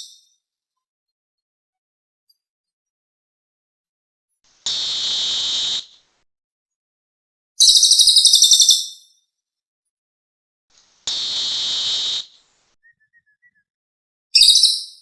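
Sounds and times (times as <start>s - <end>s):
bird hissing call: 4.6s - 6.1s, 10.8s - 12.6s
bird buzzy trill: 7.6s - 9.0s, 11.0s - 13.2s, 14.4s - 15.0s.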